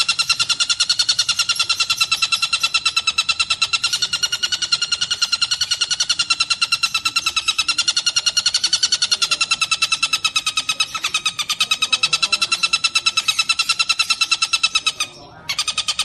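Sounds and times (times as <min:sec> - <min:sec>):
kingfisher calling harsh notes: 0:00.0 - 0:16.0.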